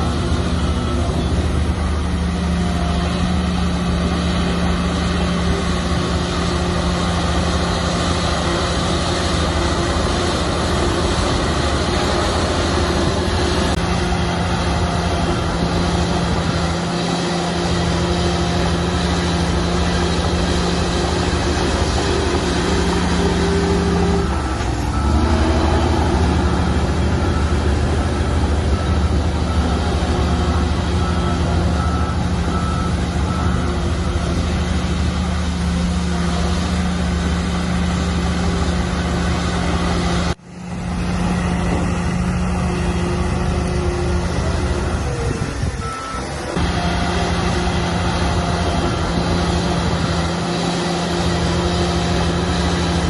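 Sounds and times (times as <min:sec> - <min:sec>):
bulldozer diesel engine: 0:00.0 - 0:53.0.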